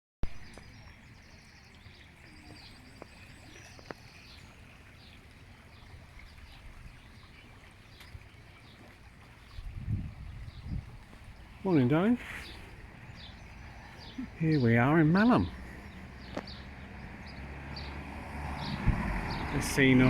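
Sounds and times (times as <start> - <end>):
birds singing and chirping: 0.3 - 20.0
wind rumble on microphone: 9.4 - 11.7, 15.8 - 20.0.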